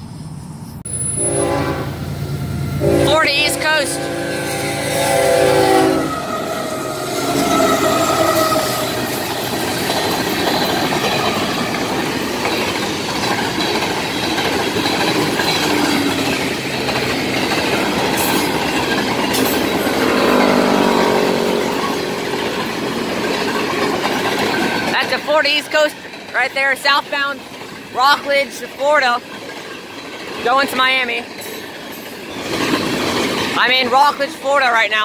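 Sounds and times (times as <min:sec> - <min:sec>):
locomotive horn: 0:01.0 - 0:09.2, 0:19.8 - 0:22.8
freight cars rumbling and clattering: 0:06.1 - 0:35.0.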